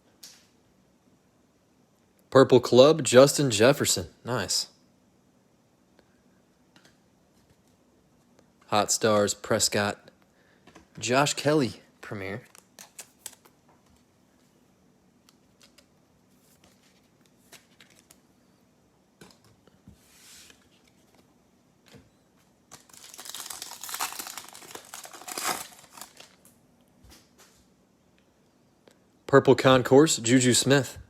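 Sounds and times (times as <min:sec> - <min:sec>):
plastic wrapper crinkling and tearing: 0:12.4 - 0:13.5, 0:22.7 - 0:26.5.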